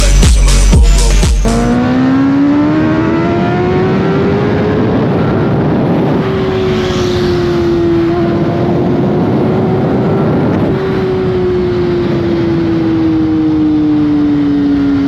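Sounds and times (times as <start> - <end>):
motorcycle engine revving: 0.0 - 15.0
rushing noise: 1.4 - 2.9.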